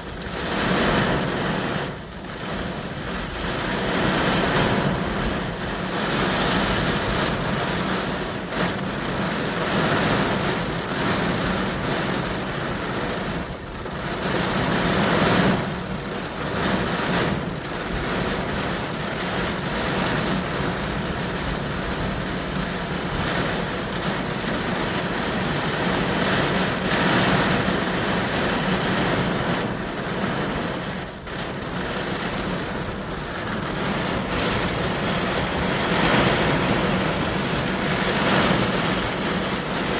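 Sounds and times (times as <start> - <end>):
heavy rain pounding on car: 0.0 - 39.9
low vehicle hum: 29.0 - 39.9.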